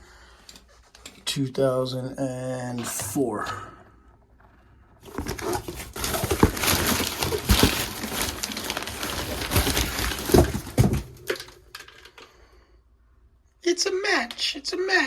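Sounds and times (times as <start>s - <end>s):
packaging rustling and crinkling: 5.0s - 12.0s.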